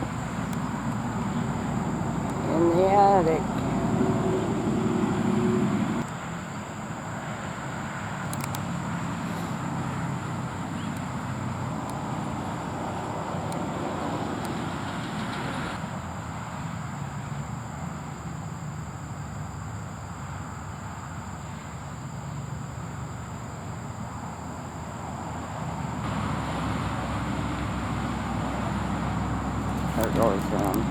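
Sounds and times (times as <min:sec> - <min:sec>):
road traffic noise: 0:00.0 - 0:30.9
faint clicks: 0:08.3 - 0:08.6.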